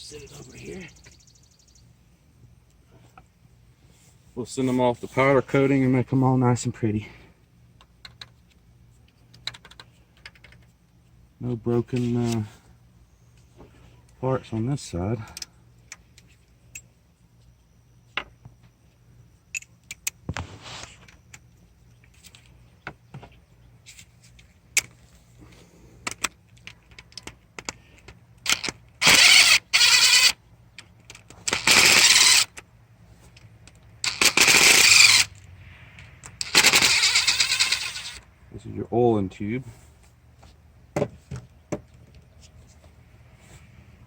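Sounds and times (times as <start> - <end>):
impact wrench rattling: 28.5 - 30.4, 31.2 - 32.6, 34.0 - 35.4, 36.3 - 38.2.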